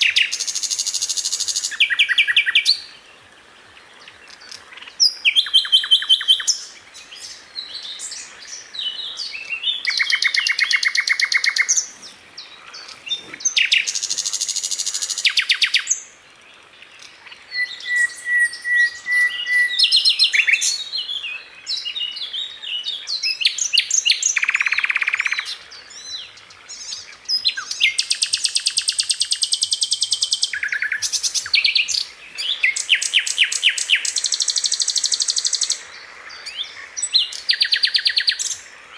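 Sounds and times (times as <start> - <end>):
flycatcher trilling song: 4.0 - 16.1.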